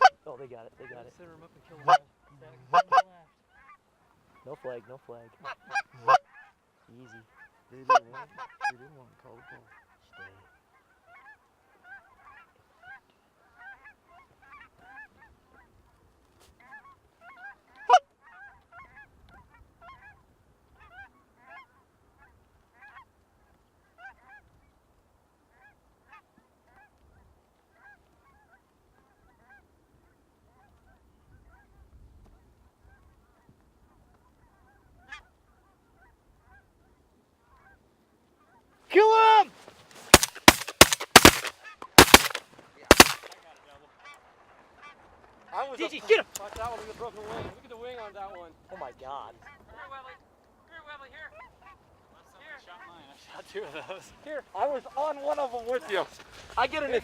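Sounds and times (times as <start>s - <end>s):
goose honks and clucks: 0.0s - 0.2s, 0.8s - 15.8s, 16.6s - 24.6s, 32.8s - 37.8s
sharp snap: 40.2s - 43.4s.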